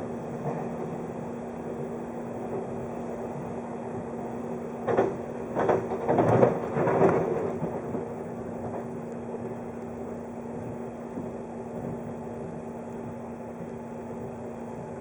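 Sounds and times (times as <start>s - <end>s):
electric train hum: 0.0s - 15.0s
heavy rumbling knocks: 0.3s - 3.5s, 4.2s - 9.6s, 10.5s - 12.5s.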